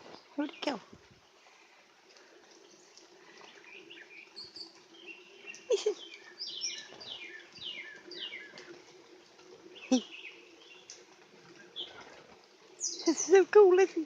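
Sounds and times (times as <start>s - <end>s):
bird chirps: 3.6s - 8.6s, 12.8s - 13.4s.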